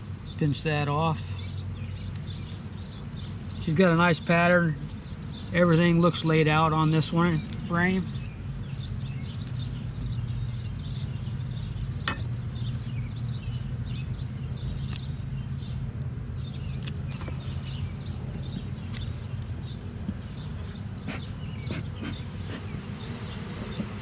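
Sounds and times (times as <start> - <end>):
birds chirping: 0.0 - 24.0
sharp clicks from hive handling: 1.8 - 3.3, 21.7 - 24.0
honeybees buzzing: 17.3 - 24.0.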